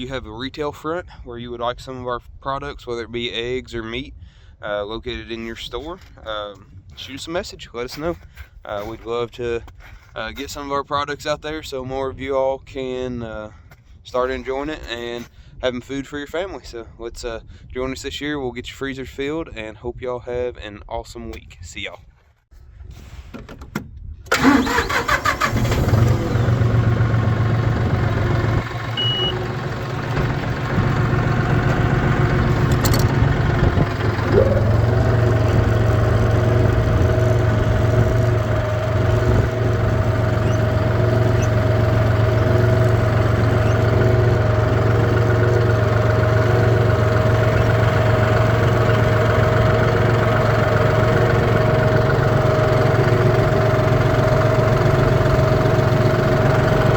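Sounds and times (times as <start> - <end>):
engine starting and running: 24.3 - 56.9.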